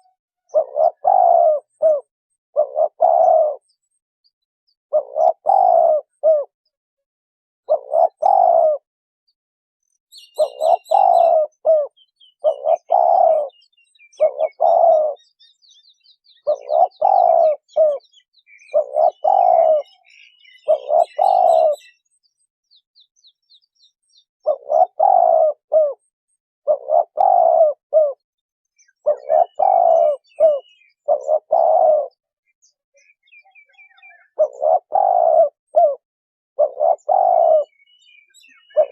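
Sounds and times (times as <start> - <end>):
dove cooing: 0.0 - 3.8, 4.9 - 6.6, 7.6 - 8.9, 10.2 - 15.4, 16.2 - 22.0, 24.4 - 28.2, 28.8 - 32.3, 33.0 - 36.0, 36.6 - 38.9
small birds chirping: 0.0 - 6.8, 7.6 - 8.9, 9.8 - 38.9.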